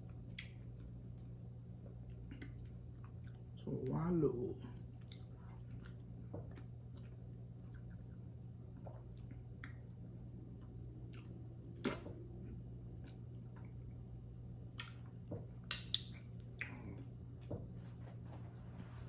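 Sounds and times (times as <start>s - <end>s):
steady low hum: 0.0s - 19.0s
wet mouth smacks eating: 2.3s - 3.4s, 5.0s - 8.2s, 8.8s - 9.9s, 10.6s - 13.8s, 14.7s - 17.1s.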